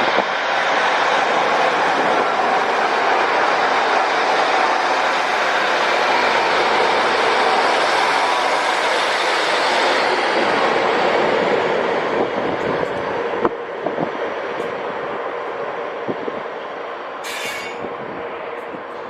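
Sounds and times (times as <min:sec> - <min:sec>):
train wheels rumbling on rails: 0:00.0 - 0:19.0
wheels clacking over rail joints: 0:16.5 - 0:19.0.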